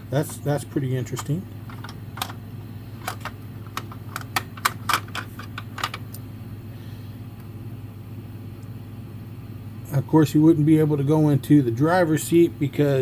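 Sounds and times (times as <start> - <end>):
steady low hum: 0.0 - 13.0
metal toys clicking and tapping: 1.2 - 2.4, 3.0 - 6.0.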